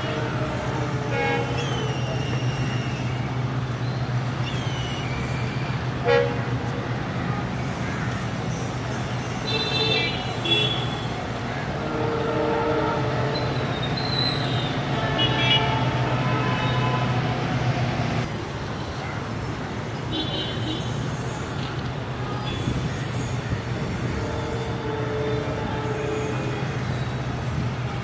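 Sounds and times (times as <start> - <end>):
short high train horn toots: 0.0 - 2.0, 6.0 - 6.5, 11.8 - 13.8, 24.0 - 26.6
passenger train rumbling: 0.0 - 28.0.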